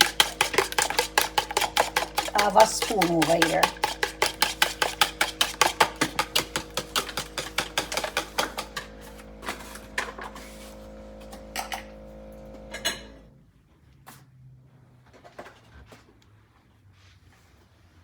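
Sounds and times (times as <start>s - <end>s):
spoon stirring in a bowl: 0.0s - 11.8s
steady hum: 0.0s - 13.3s.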